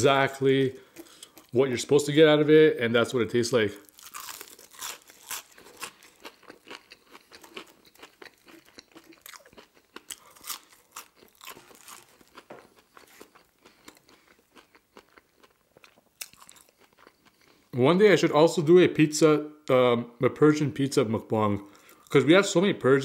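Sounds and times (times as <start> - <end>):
person chewing: 0.8 - 1.6, 3.8 - 17.7, 21.7 - 22.2.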